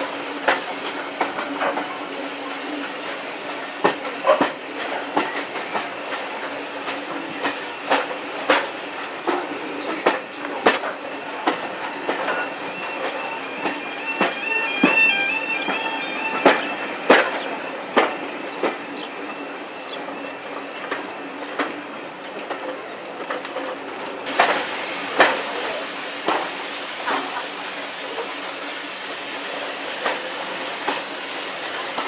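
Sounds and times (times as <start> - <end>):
train rumble: 0.0 - 32.0
train wheels clicking over rail joints: 0.0 - 32.0
high wheel squeal: 11.0 - 20.9.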